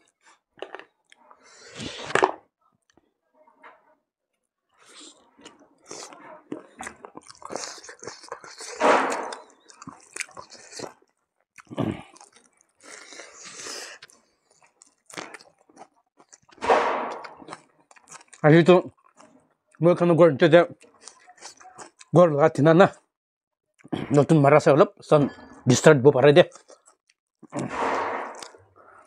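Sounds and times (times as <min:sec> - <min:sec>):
chewing with mouth smacks: 0:04.8 - 0:19.5, 0:20.8 - 0:22.1.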